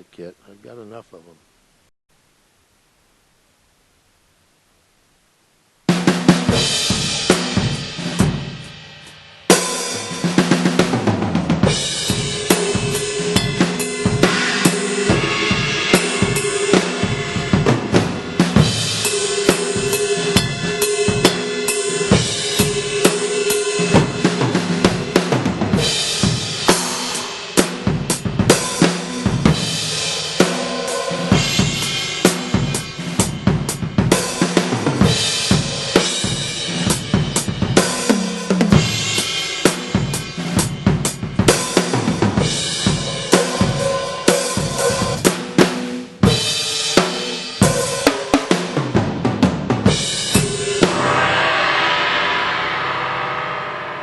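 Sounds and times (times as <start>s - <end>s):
drum kit groove: 5.9s - 54.0s
cymbal ringing: 11.7s - 44.2s, 49.9s - 54.0s.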